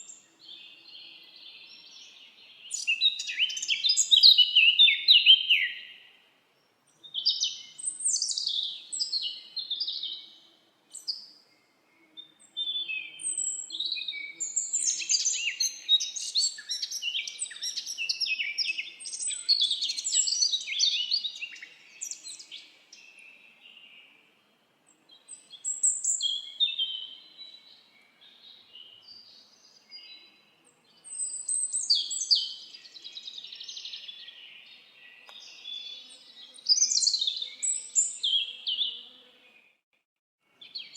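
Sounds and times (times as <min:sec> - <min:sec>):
songbirds singing and chirping: 0:00.0 - 0:39.8, 0:40.5 - 0:40.9.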